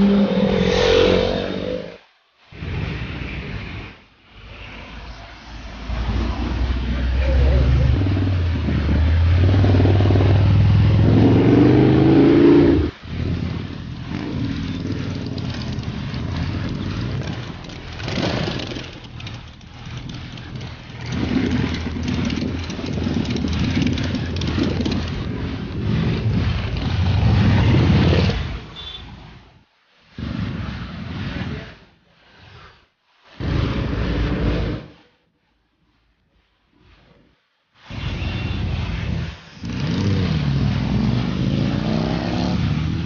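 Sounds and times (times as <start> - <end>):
motorcycle engines revving: 0.0 - 29.0, 37.9 - 43.0
road noise: 0.0 - 35.2, 37.7 - 43.0.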